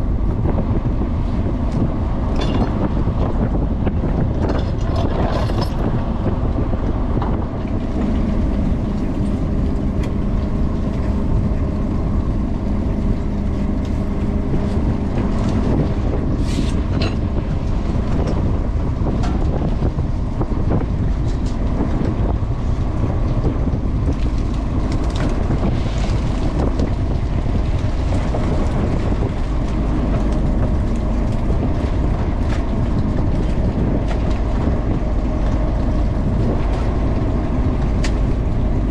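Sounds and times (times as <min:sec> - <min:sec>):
boat engine running: 0:00.0 - 0:38.9
low hum: 0:00.0 - 0:38.9.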